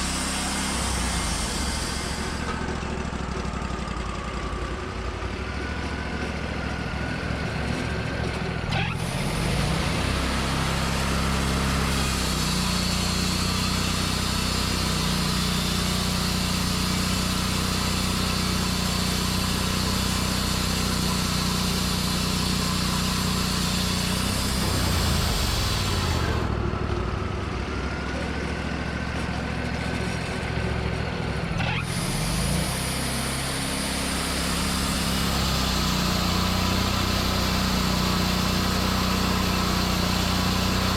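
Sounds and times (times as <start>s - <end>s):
blade cutting log hiss: 0.0s - 2.6s, 31.8s - 40.9s
sawmill engine running: 0.0s - 40.9s.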